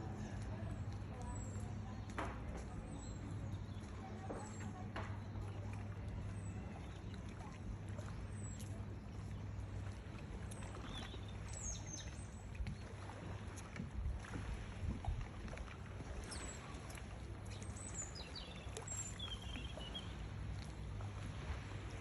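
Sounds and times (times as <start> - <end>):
small birds chirping: 6.2 - 12.9, 16.2 - 20.3.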